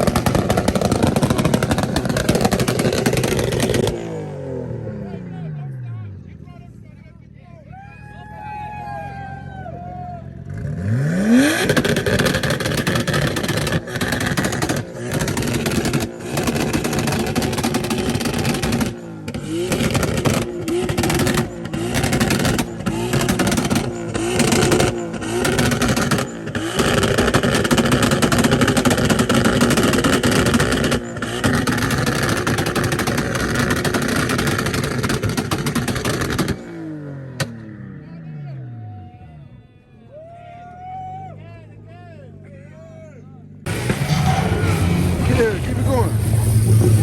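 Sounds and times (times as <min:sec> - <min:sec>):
car engine revving high: 0:00.0 - 0:05.2, 0:10.4 - 0:37.8, 0:43.6 - 0:47.0.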